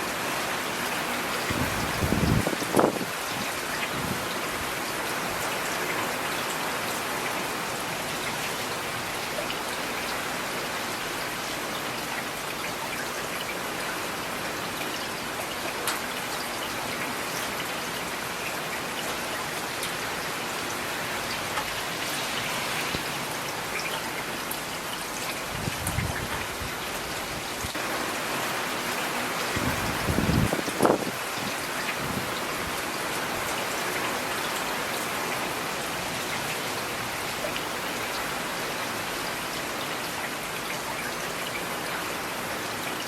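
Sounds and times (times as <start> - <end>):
steady rain: 0.0 - 43.0
raindrops pattering on hard surface: 18.7 - 41.5.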